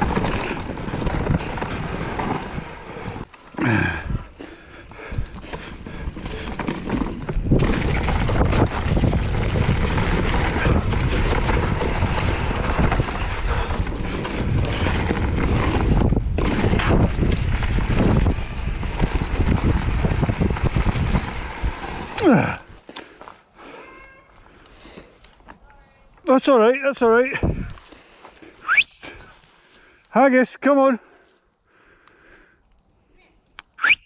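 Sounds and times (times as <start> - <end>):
wind buffeting microphone: 0.0 - 3.3, 3.9 - 22.8, 27.4 - 27.8
bike tyre and trail noise: 0.0 - 34.0.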